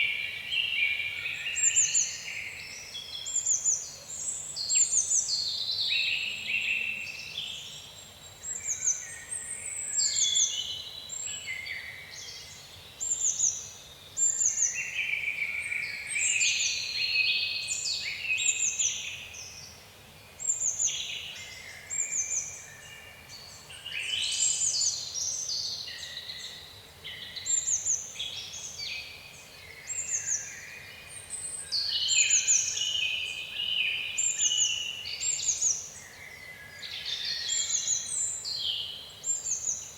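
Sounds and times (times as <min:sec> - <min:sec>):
high songbird chirps: 0:20.4 - 0:39.9.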